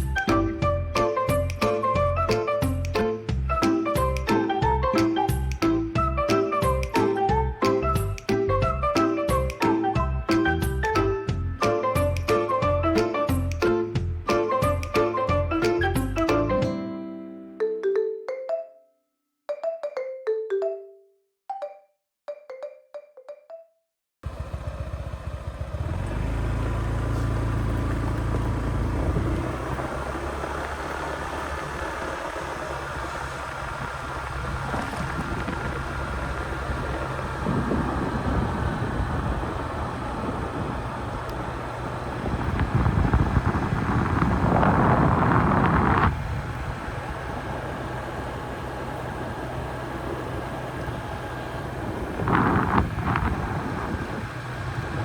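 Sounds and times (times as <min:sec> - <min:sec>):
scooter engine running: 0:24.2 - 0:55.0
wind noise on microphone: 0:26.7 - 0:30.4, 0:33.3 - 0:47.8, 0:50.4 - 0:55.0.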